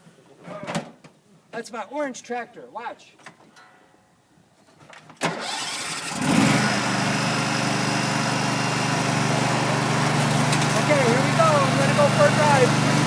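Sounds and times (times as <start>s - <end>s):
starter motor cranking: 5.3s - 7.0s, 9.7s - 13.0s
tractor engine idling: 7.1s - 13.0s.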